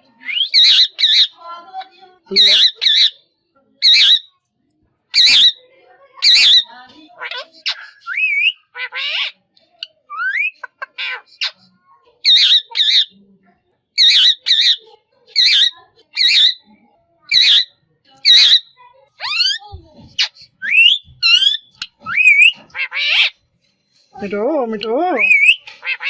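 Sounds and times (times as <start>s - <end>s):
parrot squawking: 0.2s - 1.4s, 2.3s - 3.2s, 3.8s - 4.3s, 5.2s - 5.6s, 6.2s - 9.4s, 10.1s - 11.6s, 12.2s - 13.2s, 14.0s - 16.7s, 17.3s - 19.6s, 20.2s - 23.4s, 24.8s - 26.0s
parrot whistles and calls: 0.2s - 1.4s, 3.8s - 4.3s, 5.2s - 5.6s, 6.2s - 6.7s, 7.7s - 9.4s, 10.1s - 11.6s, 12.3s - 13.1s, 14.0s - 16.7s, 17.3s - 19.6s, 20.2s - 23.3s, 25.2s - 26.0s.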